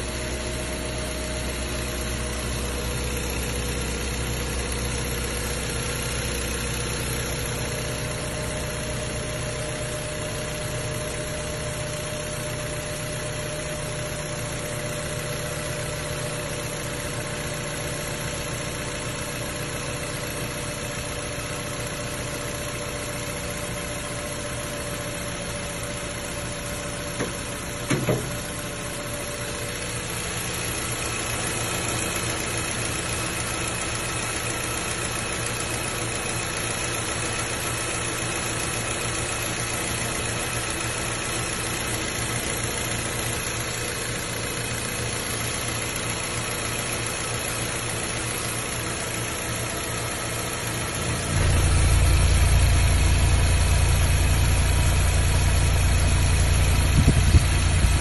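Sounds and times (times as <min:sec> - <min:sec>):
car engine idling: 0:00.0 - 0:58.0
sharp knocks: 0:27.2 - 0:28.4.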